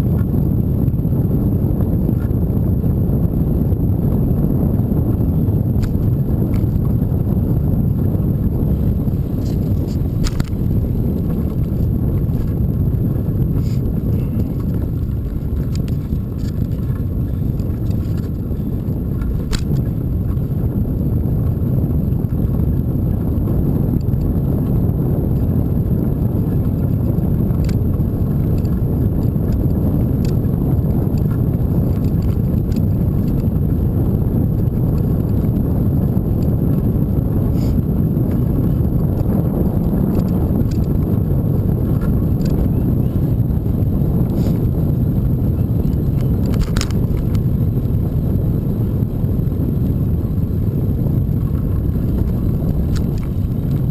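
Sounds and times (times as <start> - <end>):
wind and riding noise: 0.0 - 53.9
faint ticks and rattles: 8.7 - 20.6, 26.4 - 33.8, 51.2 - 53.9.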